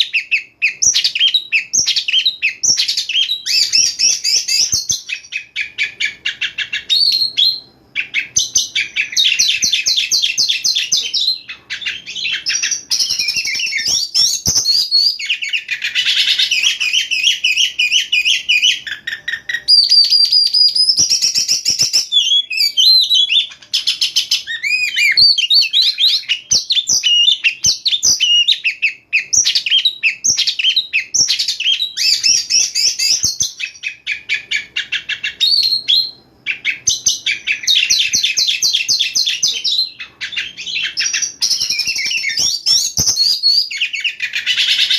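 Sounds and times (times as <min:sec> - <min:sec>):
songbird singing whistles and trills: 0:00.0 - 0:44.9.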